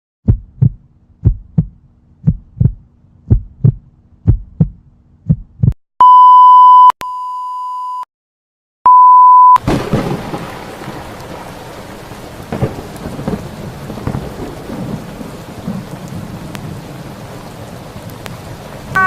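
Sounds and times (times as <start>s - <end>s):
heartbeat thumps: 0.2s - 5.8s
high electronic beep: 6.0s - 8.1s, 8.9s - 9.6s.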